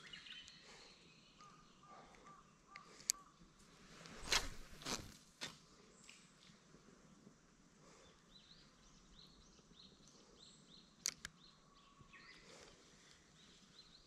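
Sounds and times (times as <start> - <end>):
faint bird song: 0.0 - 4.8, 5.6 - 14.0
sharp clicks: 11.0 - 11.4.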